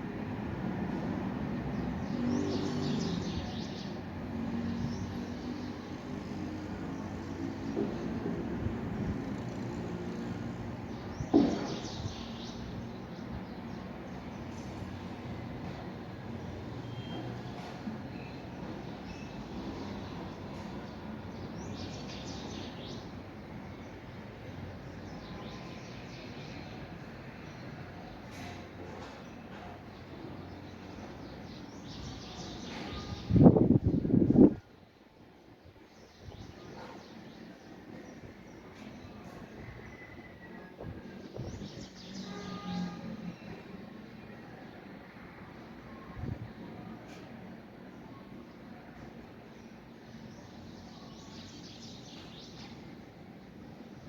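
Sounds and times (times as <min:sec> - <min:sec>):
small birds chirping: 0:49.4 - 0:54.0.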